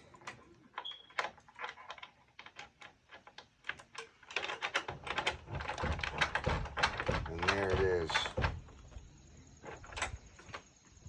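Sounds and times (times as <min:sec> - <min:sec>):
metal padlock clicks and rattles: 0:00.0 - 0:08.4.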